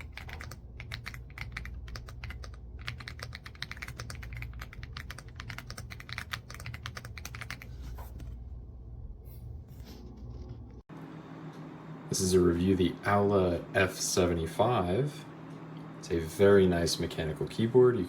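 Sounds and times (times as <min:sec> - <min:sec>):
fast typing on mechanical keyboard: 0:00.0 - 0:07.7.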